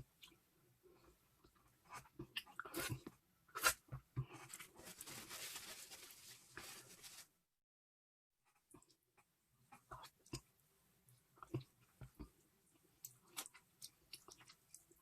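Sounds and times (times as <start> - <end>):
wet chewing and lip smacks: 13.0 - 15.0.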